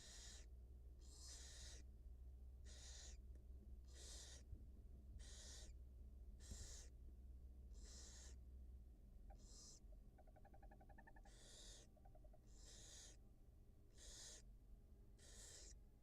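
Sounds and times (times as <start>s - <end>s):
barn owl hissing: 0.0s - 1.8s, 2.7s - 3.2s, 3.9s - 4.4s, 5.2s - 5.7s, 6.4s - 6.9s, 7.8s - 8.4s, 9.3s - 9.8s, 10.4s - 13.2s, 14.0s - 14.4s, 15.2s - 15.8s
low steady hum: 0.0s - 16.0s.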